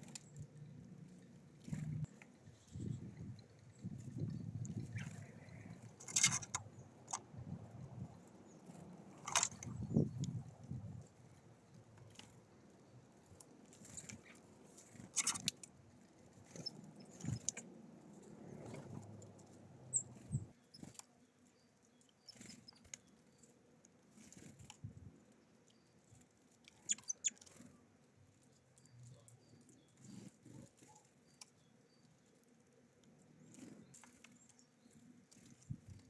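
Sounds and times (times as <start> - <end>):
beaks pecking at feeder: 0.0 - 36.0
high bird chirp: 26.8 - 27.4.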